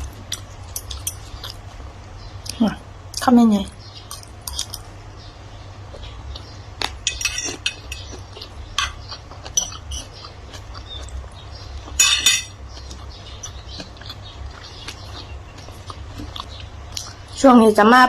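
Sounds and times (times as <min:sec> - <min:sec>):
steady low hum: 0:00.0 - 0:18.0
utensils clinking against dishes: 0:07.0 - 0:08.2, 0:08.8 - 0:10.1, 0:12.0 - 0:12.6.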